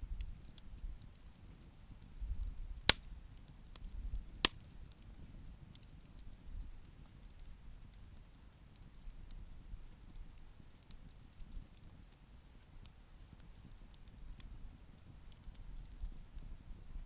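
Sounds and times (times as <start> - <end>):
campfire crackling: 0.0 - 17.0
loud sharp fire pops: 2.8 - 6.3.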